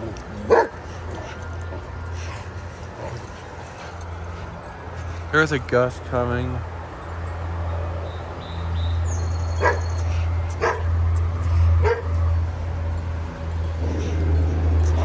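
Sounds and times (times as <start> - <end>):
dog barking: 0.0 - 4.8, 9.5 - 15.0
wind chimes ringing: 0.0 - 6.6, 9.6 - 15.0.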